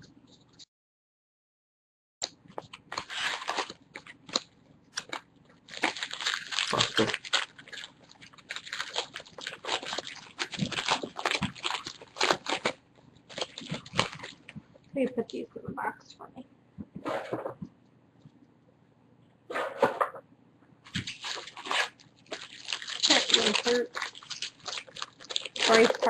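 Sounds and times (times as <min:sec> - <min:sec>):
plastic wrappers crinkling: 0:02.5 - 0:14.9, 0:20.9 - 0:26.0.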